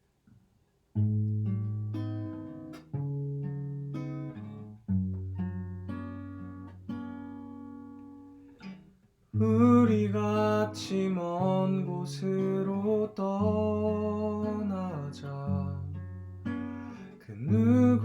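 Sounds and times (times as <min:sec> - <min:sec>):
acoustic guitar chords strummed: 0:09.4 - 0:18.0.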